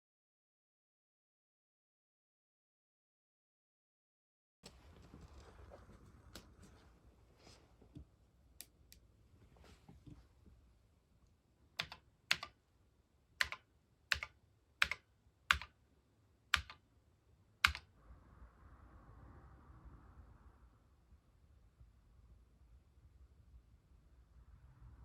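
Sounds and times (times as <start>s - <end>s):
computer keyboard keystrokes: 11.8s - 12.6s, 13.4s - 15.8s, 16.5s - 16.8s, 17.6s - 17.9s.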